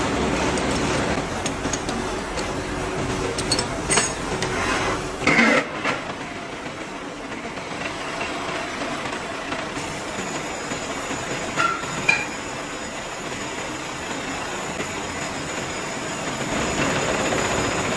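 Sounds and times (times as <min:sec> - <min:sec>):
workshop machinery noise: 0:00.0 - 0:17.9
metallic clicks and clanks: 0:03.2 - 0:04.6.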